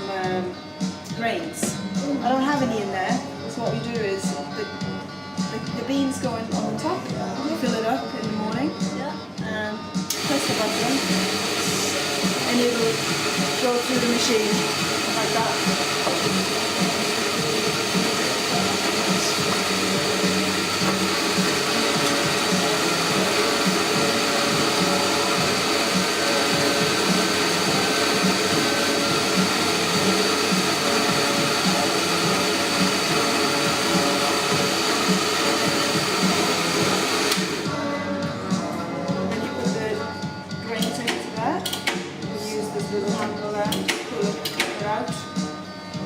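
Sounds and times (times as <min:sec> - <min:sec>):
coffee grinder whirring: 0:10.1 - 0:37.9.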